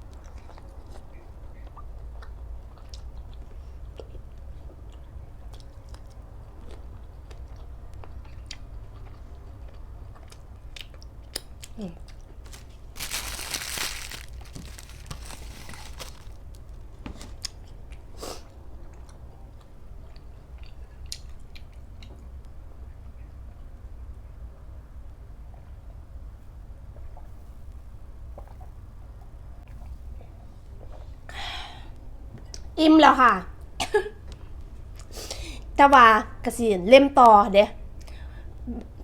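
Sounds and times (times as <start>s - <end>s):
person chewing food: 8.2s - 17.5s
crunching raw vegetables: 11.4s - 17.6s.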